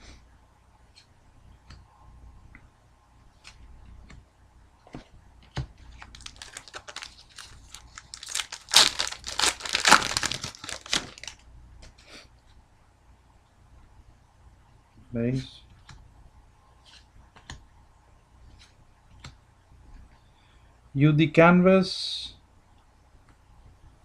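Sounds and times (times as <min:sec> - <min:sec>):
foil wrapper tearing and crinkling: 0:05.9 - 0:11.4.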